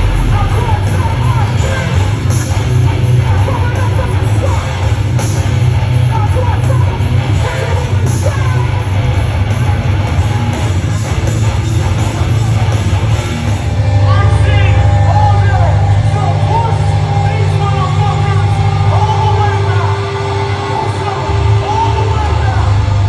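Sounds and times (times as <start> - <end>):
crashing cymbal hits: 0.0 - 4.4, 13.0 - 23.0
heavy band playing live: 0.0 - 23.0.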